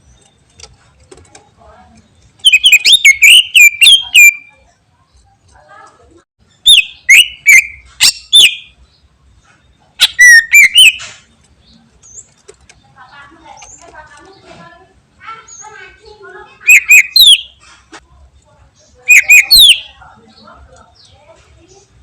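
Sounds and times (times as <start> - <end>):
bird singing sharp whistled notes: 2.5 - 4.5, 6.7 - 8.8, 10.0 - 11.1, 16.7 - 17.5, 19.1 - 20.0.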